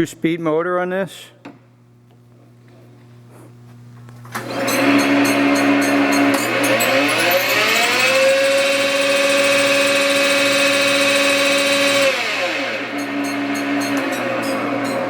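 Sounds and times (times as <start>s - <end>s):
lathe motor whine: 4.3s - 15.0s.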